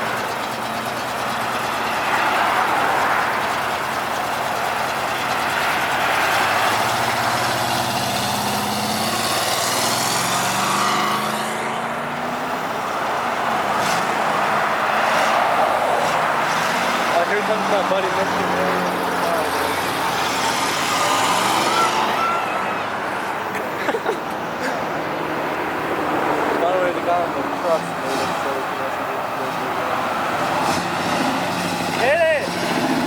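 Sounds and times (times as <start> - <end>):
outdoor background noise: 0.0 - 33.0
car engine accelerating past: 5.4 - 12.6.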